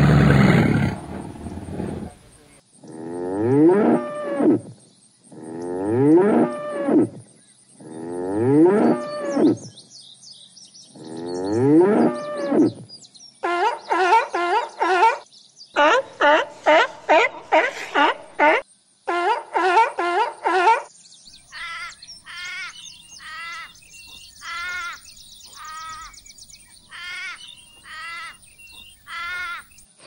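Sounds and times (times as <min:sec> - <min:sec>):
buffalo mooing: 0:00.0 - 0:02.2.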